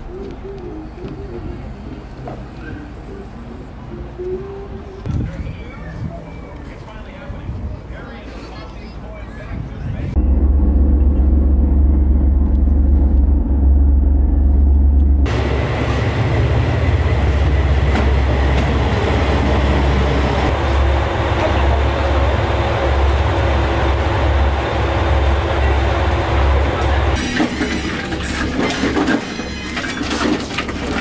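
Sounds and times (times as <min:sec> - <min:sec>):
boat engine rumble: 0:00.0 - 0:28.6.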